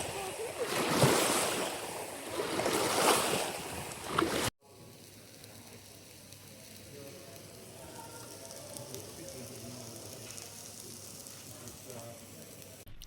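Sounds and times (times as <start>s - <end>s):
sea noise: 0.0s - 4.6s
faint steady hiss: 3.5s - 12.9s.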